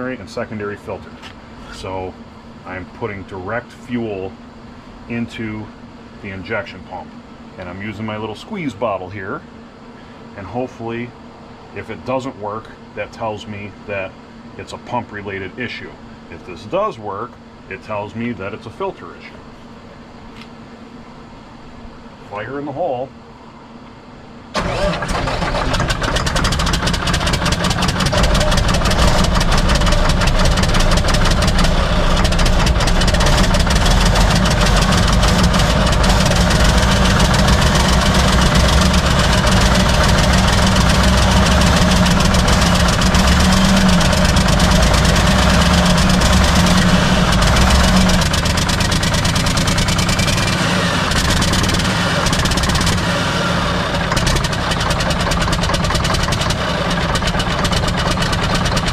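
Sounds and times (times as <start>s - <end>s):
diesel truck engine running: 24.5s - 58.9s.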